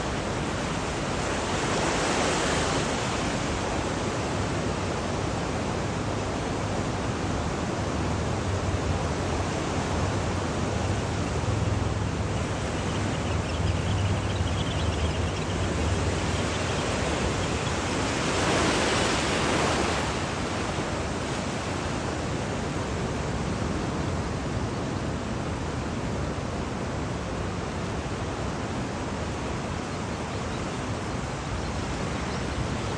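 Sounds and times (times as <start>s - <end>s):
ocean surf washing on beach: 0.0s - 32.9s.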